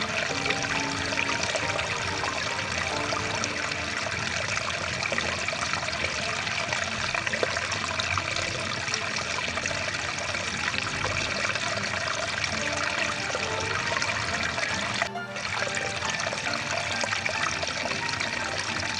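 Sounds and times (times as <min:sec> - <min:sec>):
stream water rushing: 0:00.0 - 0:18.9.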